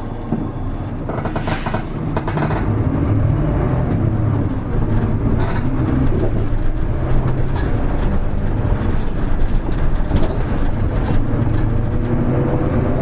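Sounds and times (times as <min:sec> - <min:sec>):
bus diesel engine droning: 0:00.0 - 0:13.0
light rattling clicks: 0:05.3 - 0:12.0.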